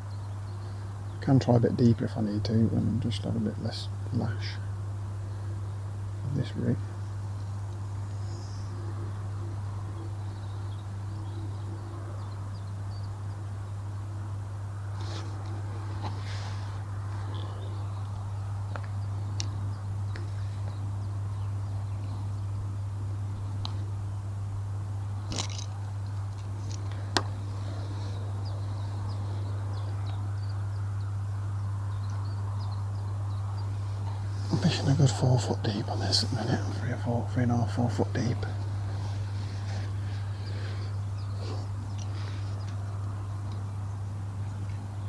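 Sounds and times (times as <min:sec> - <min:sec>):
small birds chirping: 0:00.0 - 0:45.0
steady low hum: 0:00.0 - 0:45.0
faint bird chirps: 0:04.2 - 0:14.2.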